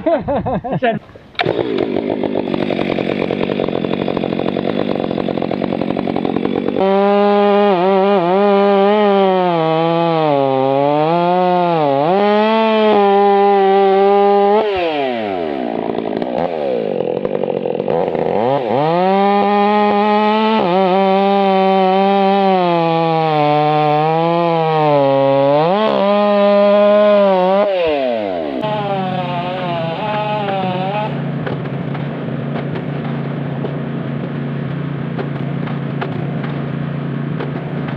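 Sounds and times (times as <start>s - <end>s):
chainsaw cutting wood: 1.0s - 37.9s.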